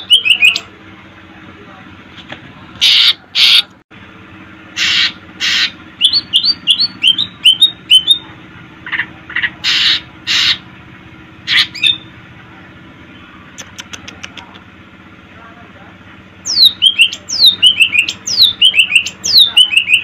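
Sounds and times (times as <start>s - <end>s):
bird harsh rasping notes: 4.7s - 8.2s, 8.8s - 10.7s, 11.4s - 12.1s.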